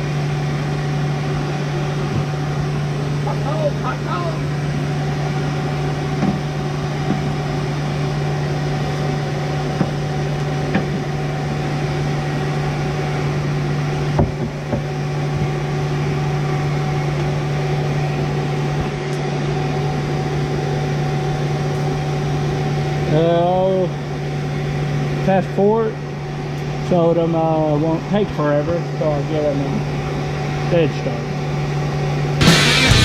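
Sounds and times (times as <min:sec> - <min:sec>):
electric blower humming: 0:32.4 - 0:33.0.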